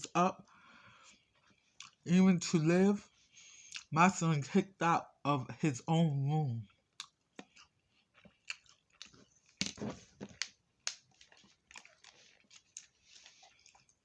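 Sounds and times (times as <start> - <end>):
chewing with crunches: 0.4 - 2.1, 3.1 - 3.9, 6.6 - 14.0.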